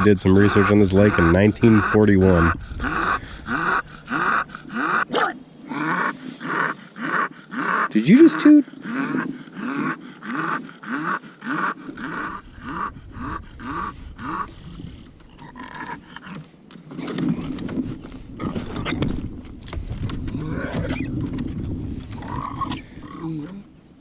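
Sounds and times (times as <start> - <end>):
dog panting: 0.3 - 5.0.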